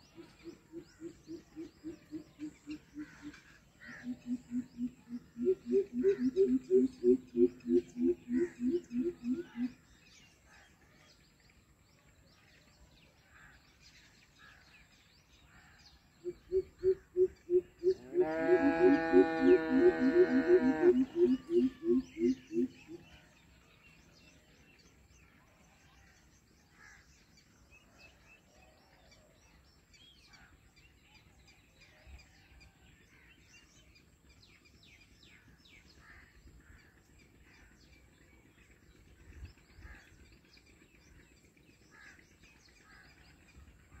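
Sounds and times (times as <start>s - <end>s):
faint bird chirps: 18.8s - 23.0s.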